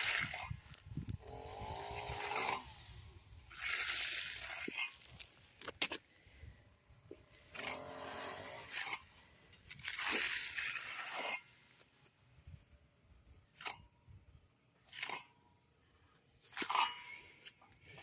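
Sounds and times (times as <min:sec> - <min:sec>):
broom scraping concrete: 0:00.0 - 0:05.4, 0:07.4 - 0:12.0.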